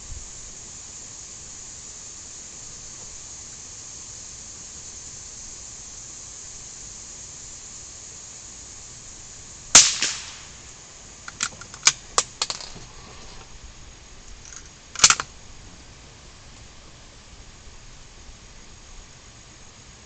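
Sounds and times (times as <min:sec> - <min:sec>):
rifle shots with echo: 0:09.8 - 0:10.5.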